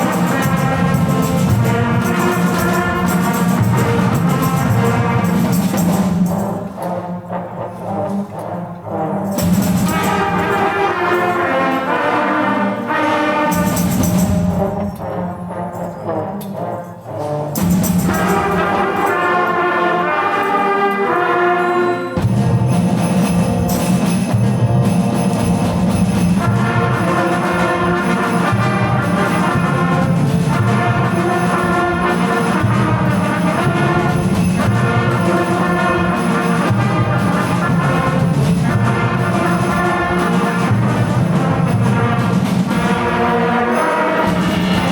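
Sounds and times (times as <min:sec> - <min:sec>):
brass ensemble playing: 0:00.0 - 0:44.9.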